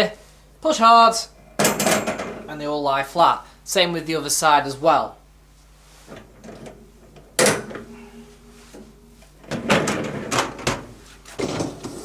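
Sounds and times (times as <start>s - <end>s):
wire rack rattling knocks: 1.6s - 2.5s, 6.4s - 8.1s, 8.8s - 11.7s
dishwasher rack clacking: 6.2s - 8.0s, 8.8s - 11.8s.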